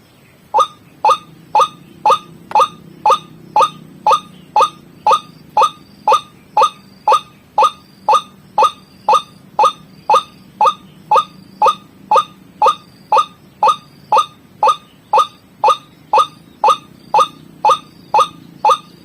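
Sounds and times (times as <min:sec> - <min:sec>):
waterhen call: 0:00.5 - 0:19.0.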